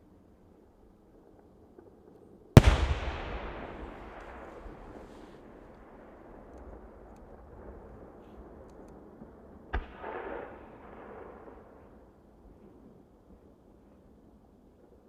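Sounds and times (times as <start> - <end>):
firework shell burst: 2.6 - 5.3
firework crackle: 2.6 - 7.4
firework rumble: 2.6 - 9.6.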